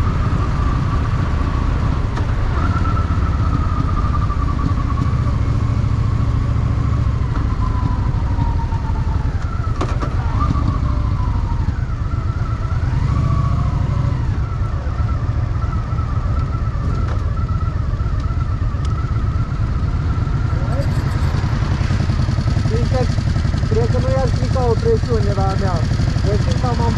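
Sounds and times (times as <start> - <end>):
motorcycle engine running: 0.0 - 26.9.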